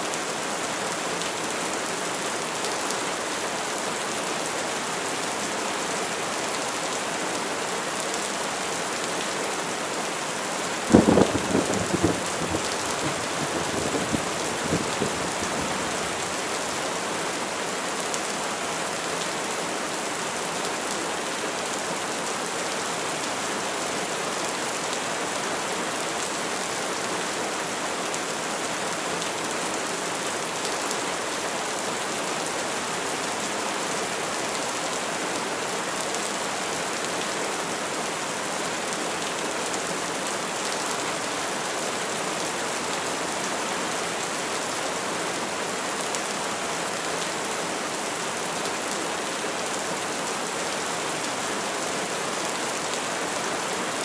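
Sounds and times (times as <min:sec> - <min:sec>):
heavy rain hissing: 0:10.8 - 0:17.2
thunder crack and rumble: 0:10.9 - 0:16.0.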